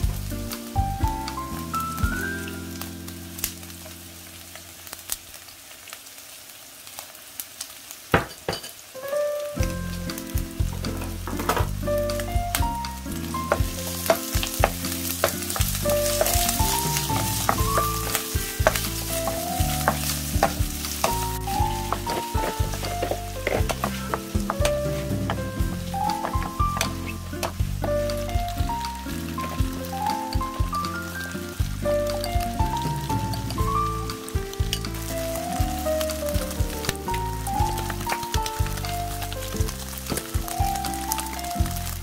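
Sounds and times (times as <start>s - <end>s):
onion slices sizzling in a pan: 0.0s - 42.0s
chopsticks and spatula clicking on pan: 13.5s - 25.4s.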